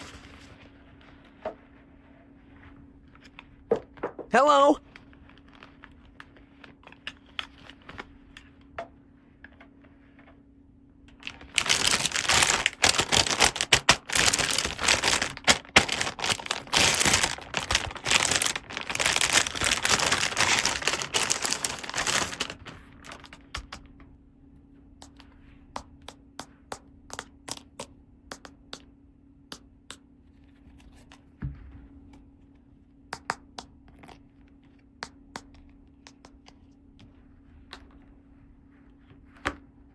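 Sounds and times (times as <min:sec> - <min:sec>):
faint steady hum: 0:00.0 - 0:39.9
packaging crinkling and tearing: 0:05.0 - 0:08.1, 0:11.1 - 0:23.9.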